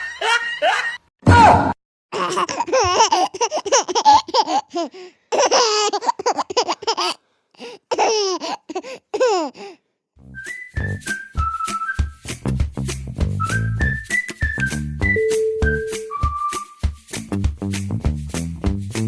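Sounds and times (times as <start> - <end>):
high-pitched laughter: 0.0 - 1.1.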